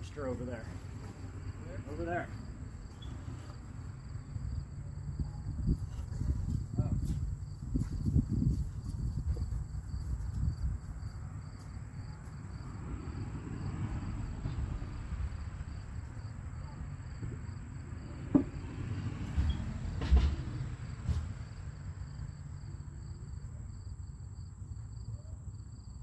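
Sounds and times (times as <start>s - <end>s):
insects chirping: 0.0s - 26.0s
sharp knocks: 18.3s - 18.7s.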